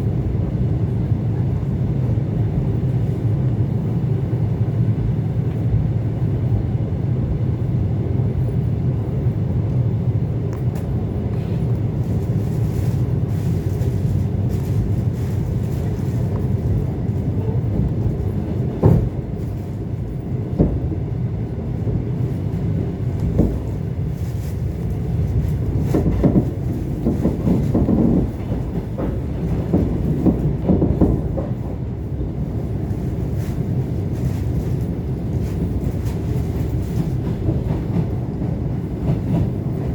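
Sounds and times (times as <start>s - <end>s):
train rumbling: 0.0s - 39.9s
wheels knocking over rail joints: 25.8s - 31.6s.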